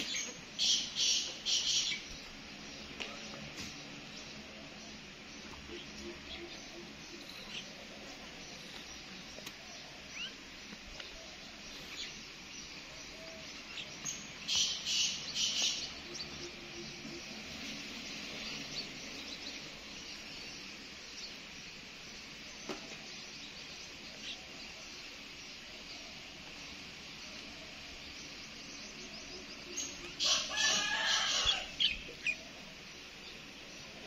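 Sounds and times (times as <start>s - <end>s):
bird chirps: 0.0s - 4.4s, 5.3s - 20.3s
loud bird calls: 0.0s - 34.0s
steady high hiss: 0.0s - 34.0s.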